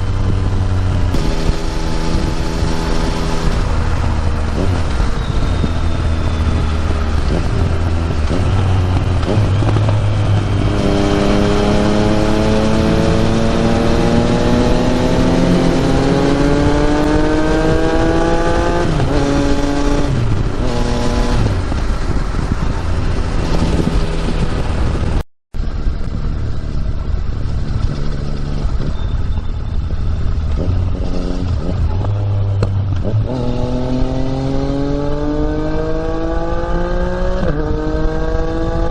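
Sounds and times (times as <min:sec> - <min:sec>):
motorcycle engine accelerating: 0:00.0 - 0:38.9
wind rushing: 0:00.0 - 0:38.9.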